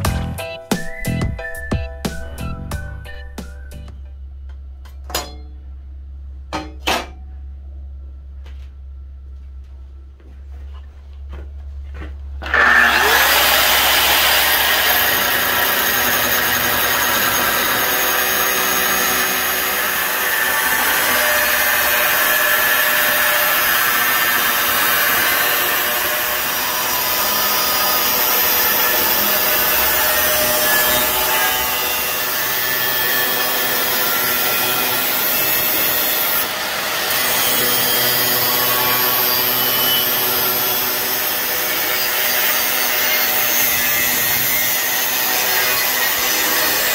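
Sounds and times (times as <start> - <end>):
angle grinder cutting steel: 12.4 - 46.9.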